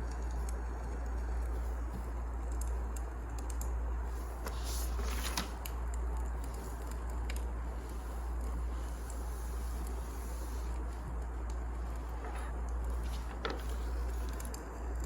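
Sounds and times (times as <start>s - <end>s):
firewood crackling: 0.0s - 15.0s
steady low hum: 0.0s - 15.0s.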